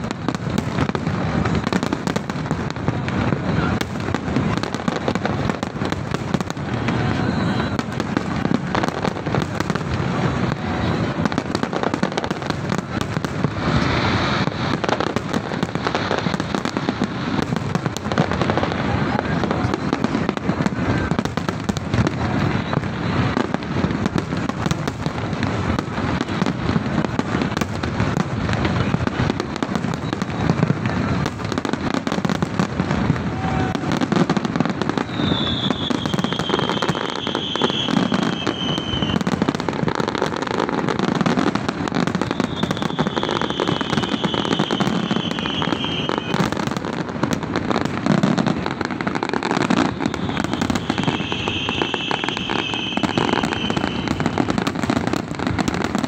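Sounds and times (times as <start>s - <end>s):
fireworks bursting and crackling: 0.0s - 56.0s
high whistling tone: 35.0s - 39.3s, 49.8s - 54.3s.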